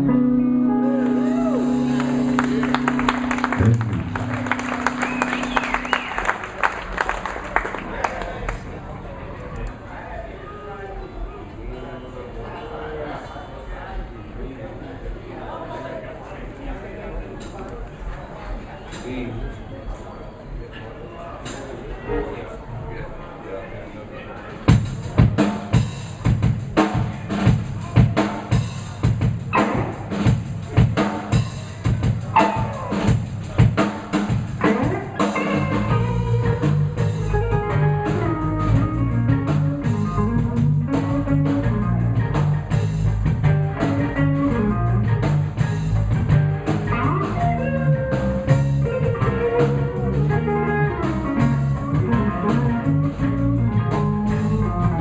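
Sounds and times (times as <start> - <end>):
blues band playing: 0.0 - 9.8, 24.7 - 55.0
drum kit beat: 0.7 - 7.0, 24.7 - 55.0.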